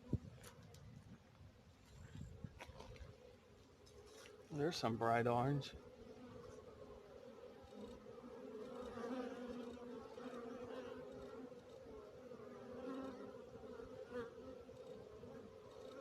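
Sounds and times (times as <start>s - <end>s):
bees buzzing: 5.4s - 16.0s.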